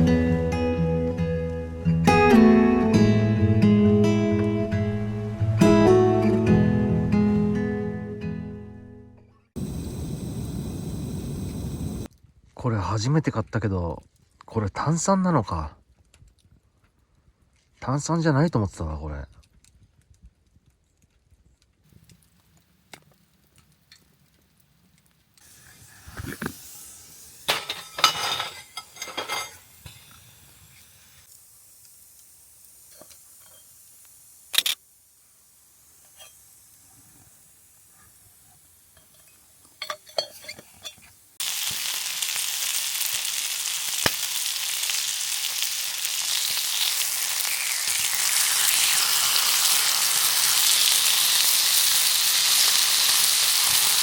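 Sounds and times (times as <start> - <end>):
food sizzling in hot pan: 9.6 - 12.1, 25.4 - 54.0
cookware clinking and knocking: 27.5 - 29.6, 39.0 - 41.0.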